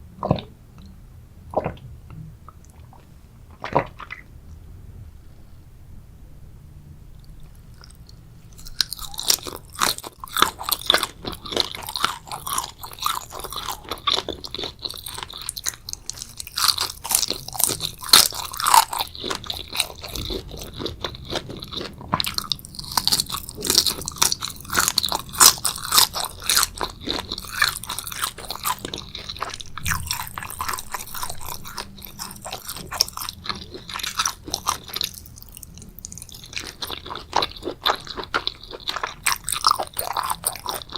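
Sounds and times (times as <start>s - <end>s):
chewing and biting food: 7.3s - 40.9s
crisp wet crunches: 8.6s - 40.9s.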